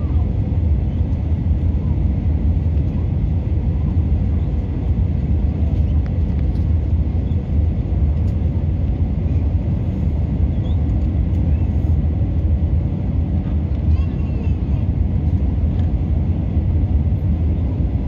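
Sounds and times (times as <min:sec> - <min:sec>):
airliner cabin engine rumble: 0:00.0 - 0:18.0.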